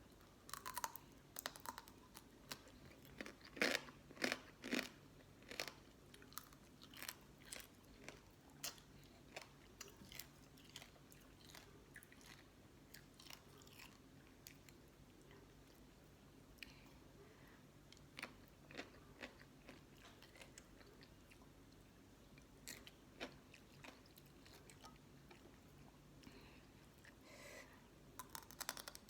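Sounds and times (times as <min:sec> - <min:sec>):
chewing and crunching crab shell: 0:00.4 - 0:14.6, 0:18.1 - 0:21.4, 0:28.2 - 0:29.0.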